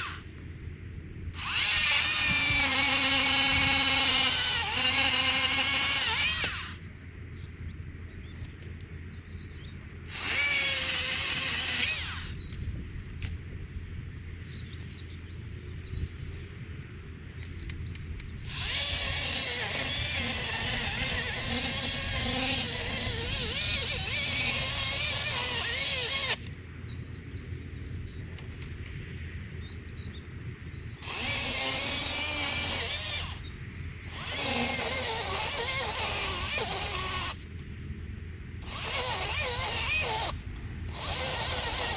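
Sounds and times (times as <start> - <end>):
motor tool cutting trees: 0.0 - 0.4, 1.4 - 6.8, 10.1 - 12.6, 18.4 - 26.6, 31.0 - 33.5, 34.1 - 37.5, 38.6 - 41.9.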